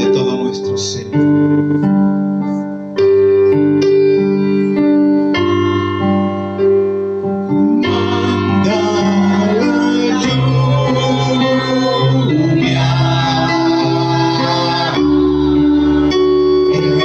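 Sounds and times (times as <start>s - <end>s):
sustained keyboard piano chords: 0.0s - 17.0s
person singing: 7.5s - 17.0s.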